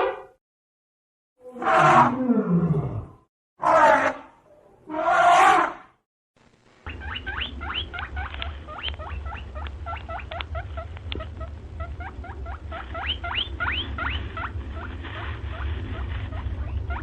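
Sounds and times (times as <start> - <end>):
steady low hum: 6.4 - 17.0
high-pitched animal squeaks: 6.9 - 14.9, 15.5 - 17.0.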